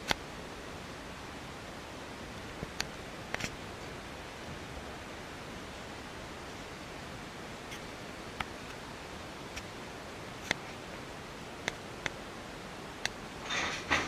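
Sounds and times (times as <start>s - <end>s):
railway carriage rolling: 13.4s - 14.0s.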